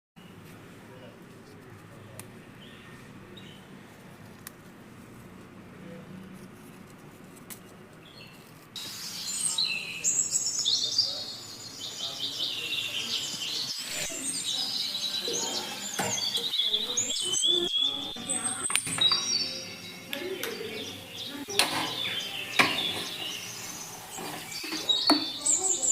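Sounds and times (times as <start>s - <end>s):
faint low background noise: 0.2s - 25.9s
rapid bird chirping: 7.6s - 25.9s.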